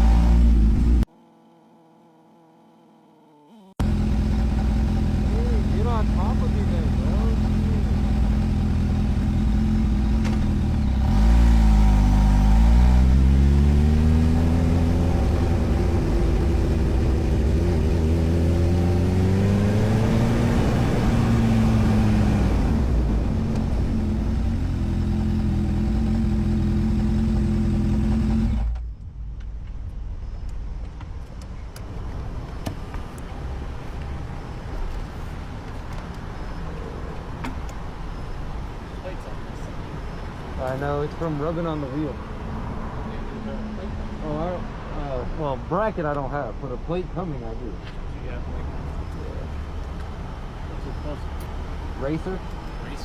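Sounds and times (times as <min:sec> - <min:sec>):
motorcycle engine running: 0:03.8 - 0:28.8.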